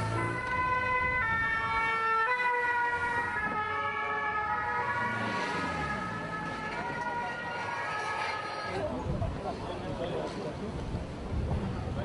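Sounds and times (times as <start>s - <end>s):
two-tone siren: 0.0s - 8.8s.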